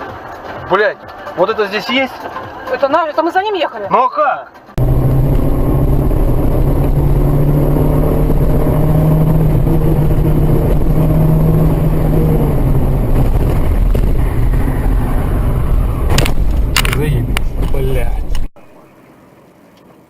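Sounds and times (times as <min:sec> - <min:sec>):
rumbling road noise: 0:00.0 - 0:20.0
car engine drone: 0:04.5 - 0:20.0.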